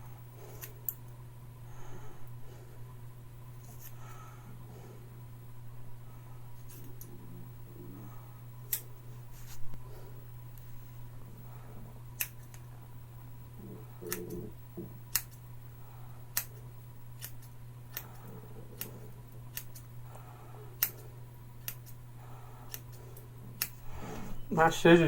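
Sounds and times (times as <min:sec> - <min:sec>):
steady low hum: 0:00.0 - 0:25.0
scissors snipping hair: 0:00.6 - 0:01.1, 0:06.6 - 0:07.1, 0:08.7 - 0:08.9, 0:12.2 - 0:12.7, 0:14.0 - 0:14.5, 0:15.1 - 0:15.4, 0:16.3 - 0:19.9, 0:20.8 - 0:22.0, 0:22.7 - 0:23.8.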